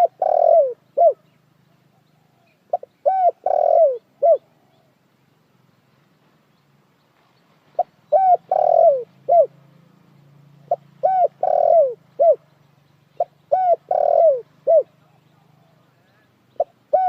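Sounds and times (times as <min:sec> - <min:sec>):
dove cooing: 0:00.0 - 0:05.0, 0:07.7 - 0:09.6, 0:10.6 - 0:12.5, 0:13.2 - 0:17.0.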